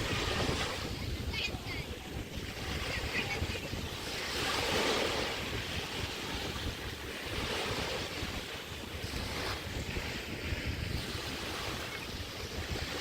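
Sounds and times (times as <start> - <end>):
waves washing on sandy shore: 0.0 - 13.0
wind buffeting microphone: 0.0 - 13.0.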